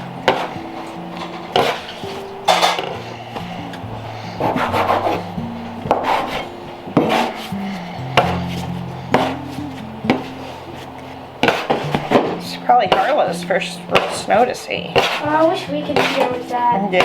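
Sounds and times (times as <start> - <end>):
soft background music: 0.0 - 17.0
kitchen knocks and scrapes: 11.4 - 13.3, 13.9 - 17.0.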